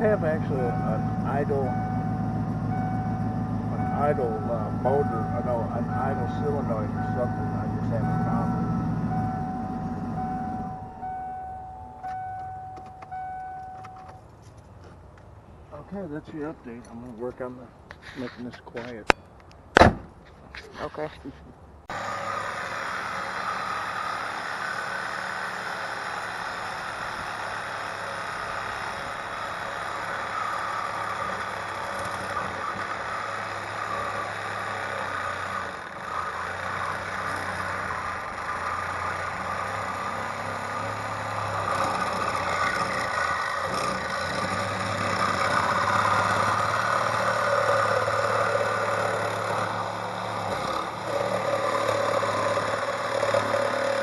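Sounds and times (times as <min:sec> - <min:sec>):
engine idling without muffler: 0:00.0 - 0:13.8.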